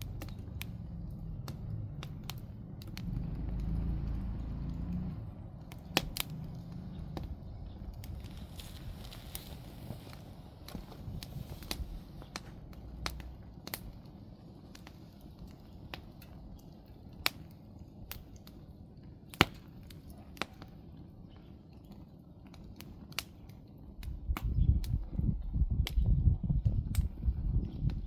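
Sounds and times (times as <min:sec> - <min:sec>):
low rumble: 0:00.0 - 0:13.9, 0:24.0 - 0:28.0
campfire crackling: 0:00.0 - 0:28.0.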